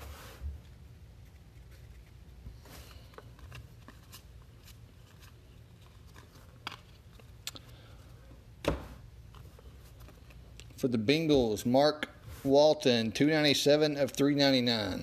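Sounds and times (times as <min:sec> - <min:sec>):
cards and foil packs rustling: 0:01.8 - 0:07.4.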